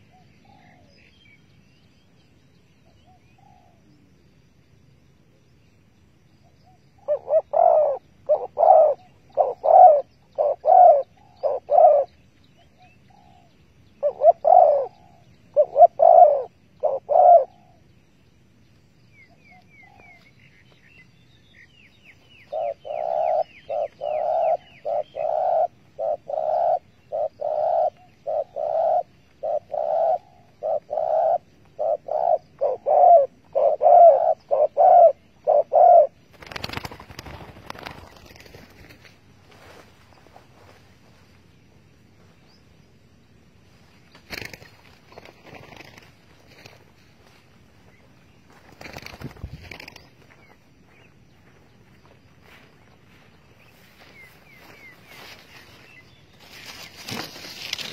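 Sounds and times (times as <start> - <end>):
small bird chirping: 5.5 - 39.2, 44.0 - 57.9
dove cooing: 7.0 - 17.9, 22.4 - 39.0.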